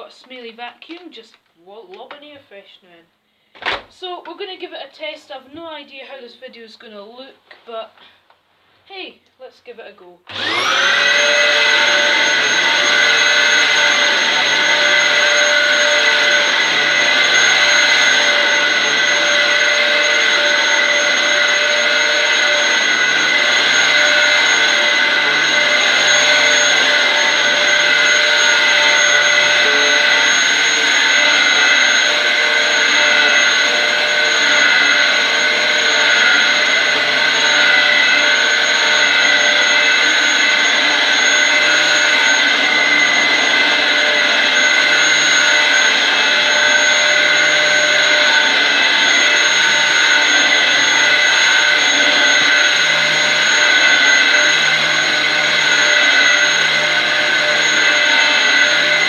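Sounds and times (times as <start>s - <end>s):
vacuum cleaner running: 10.3s - 59.0s.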